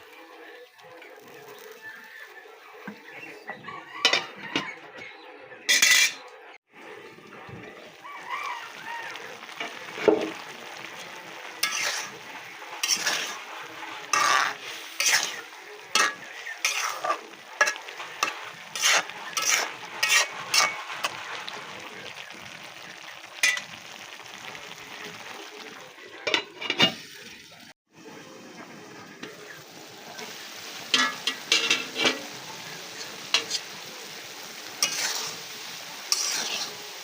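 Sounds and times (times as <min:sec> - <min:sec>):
food sizzling in oil: 0:00.0 - 0:04.6, 0:05.7 - 0:37.0
spatula scraping pan: 0:05.7 - 0:06.2, 0:07.3 - 0:22.3, 0:30.2 - 0:34.0, 0:34.8 - 0:37.0.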